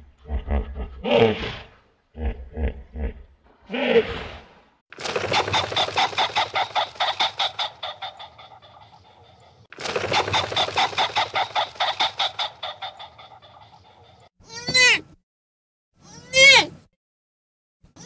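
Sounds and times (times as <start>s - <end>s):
chicken clucking rapidly: 5.0s - 14.3s.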